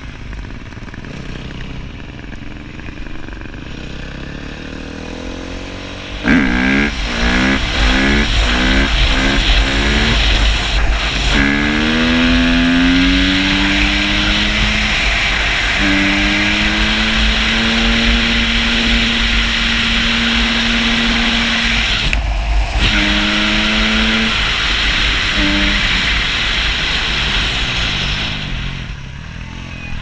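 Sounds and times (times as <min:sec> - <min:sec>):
dirt bike engine revving: 0:00.2 - 0:29.8
wind rumble on microphone: 0:06.1 - 0:28.8.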